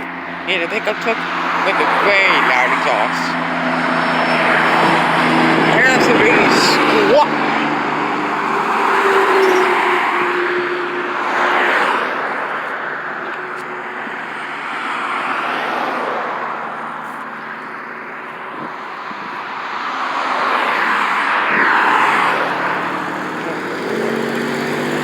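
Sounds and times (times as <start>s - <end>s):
vehicles passing: 0.0s - 25.0s.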